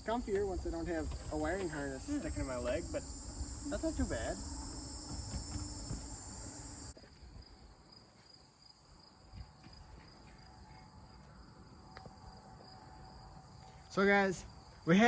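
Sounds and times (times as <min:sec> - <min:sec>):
high-pitched insect drone: 0:00.0 - 0:07.0
low rumble: 0:01.1 - 0:07.0.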